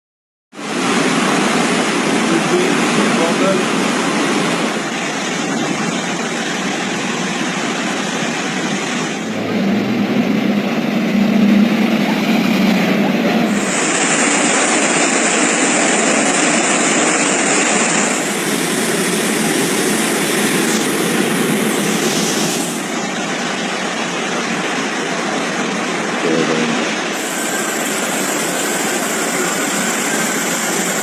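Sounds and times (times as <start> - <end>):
fast-flowing floodwater rushing: 0.7 - 23.6.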